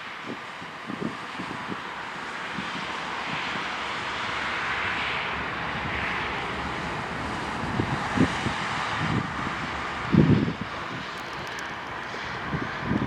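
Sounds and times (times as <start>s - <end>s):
freight train wheels on rails: 0.0s - 13.0s
wind thumps on microphone: 7.4s - 11.2s.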